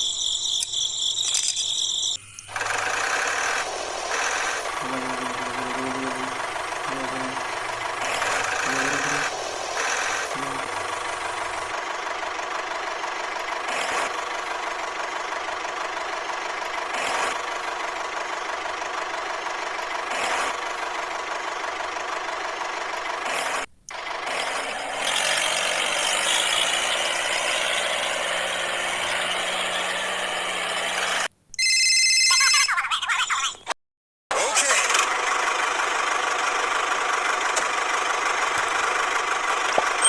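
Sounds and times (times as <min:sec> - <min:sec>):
high-pitched squeal: 0:00.0 - 0:11.7
small tractor motor running: 0:00.0 - 0:31.3, 0:34.3 - 0:40.0.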